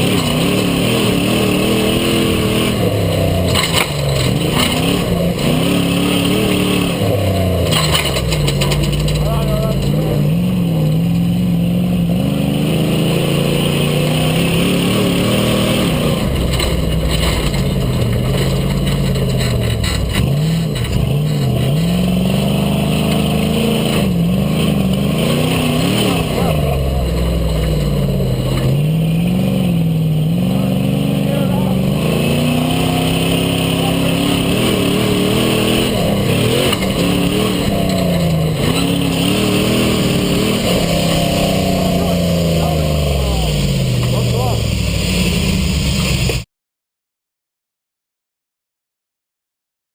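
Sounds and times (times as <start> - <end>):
buggy engine revving: 0.0 - 46.4.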